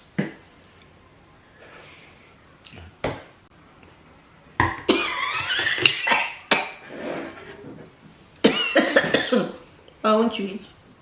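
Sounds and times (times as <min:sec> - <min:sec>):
person coughing outburst: 0:04.9 - 0:06.8, 0:08.4 - 0:09.6.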